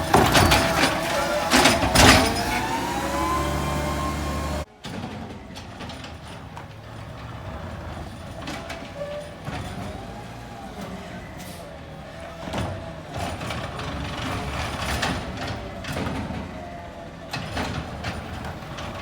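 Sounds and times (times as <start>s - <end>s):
loud metal clangs: 0.0s - 4.6s
machinery whine rising: 0.0s - 4.7s
steady truck noise: 0.0s - 19.0s.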